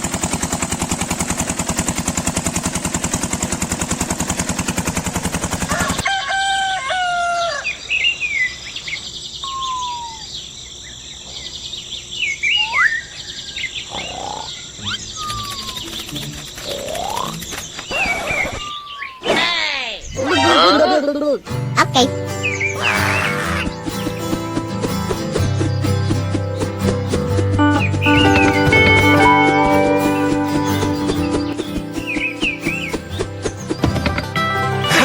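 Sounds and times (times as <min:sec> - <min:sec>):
small engine clattering: 0:00.0 - 0:06.0, 0:14.9 - 0:18.6, 0:23.4 - 0:35.0
rooster crowing: 0:05.6 - 0:08.0
birds whistling: 0:07.3 - 0:20.9, 0:22.0 - 0:34.4.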